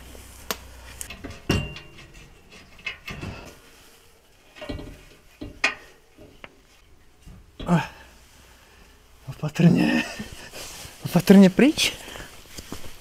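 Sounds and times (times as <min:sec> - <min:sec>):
metal tools clinking and knocking: 0:01.0 - 0:03.6, 0:04.5 - 0:06.4.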